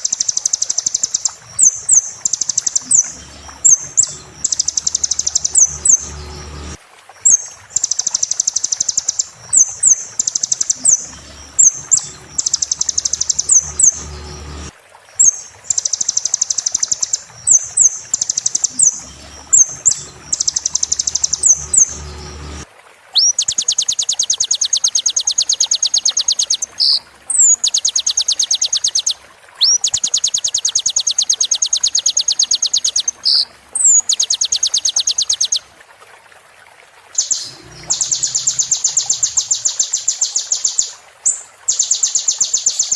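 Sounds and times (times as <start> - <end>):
sunbird song trills: 0.0 - 22.6, 37.2 - 42.9
rising whistled bird notes: 37.2 - 40.6.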